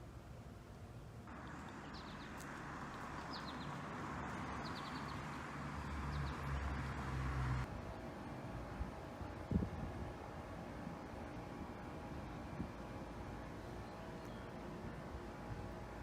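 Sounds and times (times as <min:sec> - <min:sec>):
steady background hiss: 0:00.0 - 0:06.1
small birds chirping: 0:01.3 - 0:07.6, 0:13.5 - 0:14.6.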